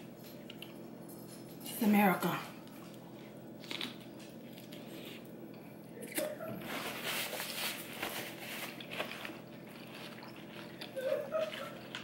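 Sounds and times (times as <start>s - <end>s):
paper towel rustling: 6.6s - 9.2s
wet chewing: 7.9s - 12.0s.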